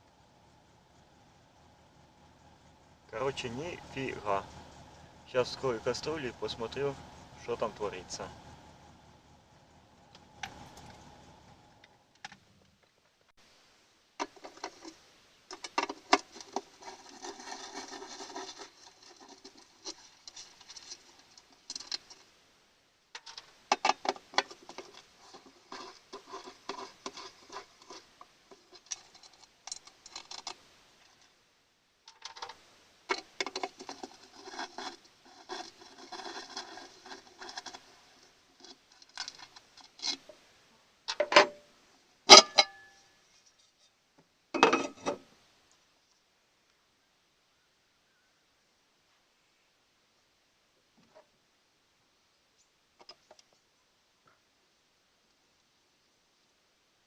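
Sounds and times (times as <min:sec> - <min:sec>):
metal parts and hand tools clinking: 0:03.1 - 0:08.6, 0:23.2 - 0:31.3, 0:42.3 - 0:43.8, 0:44.6 - 0:45.2.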